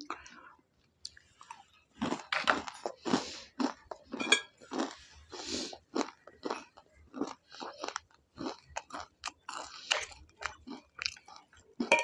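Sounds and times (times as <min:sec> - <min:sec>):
person chewing and crunching food: 0:00.0 - 0:12.0
fork clinking on a plate: 0:04.2 - 0:04.6.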